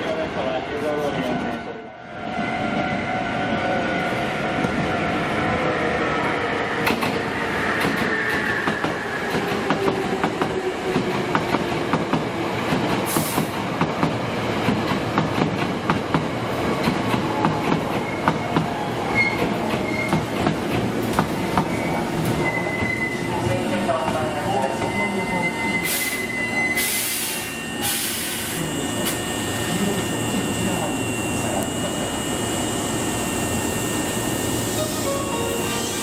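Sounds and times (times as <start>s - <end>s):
train motor whine: 25.8s - 36.0s.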